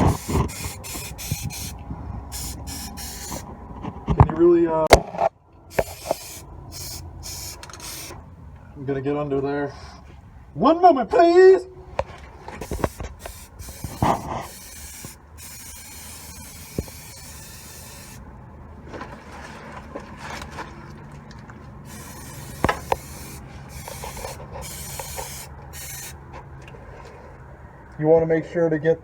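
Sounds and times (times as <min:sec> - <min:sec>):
spray can hissing: 0:00.0 - 0:03.5, 0:05.7 - 0:08.2, 0:12.6 - 0:18.2, 0:21.9 - 0:26.2.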